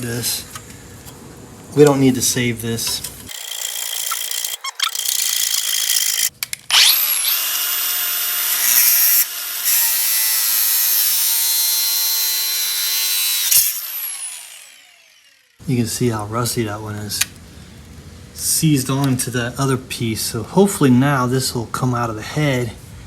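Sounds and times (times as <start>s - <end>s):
power cutting tool whining: 3.3s - 15.6s.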